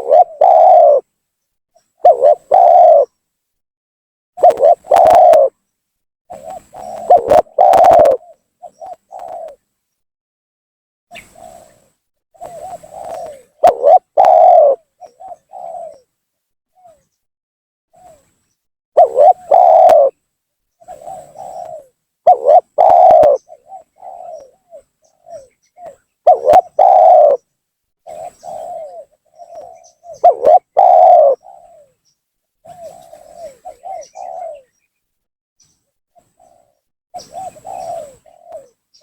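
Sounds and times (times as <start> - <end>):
dove cooing: 0.0 - 1.1, 2.0 - 3.2, 4.4 - 5.6, 6.3 - 9.6, 11.1 - 16.1, 16.8 - 17.1, 18.0 - 18.3, 19.0 - 20.2, 20.8 - 32.0, 32.6 - 34.8, 36.2 - 38.9.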